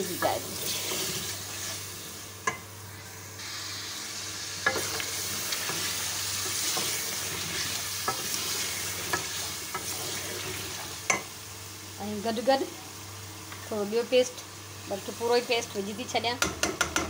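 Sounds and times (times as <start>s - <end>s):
food sizzling in oil: 0.0s - 17.0s
spoon knocking on pot: 16.4s - 17.0s.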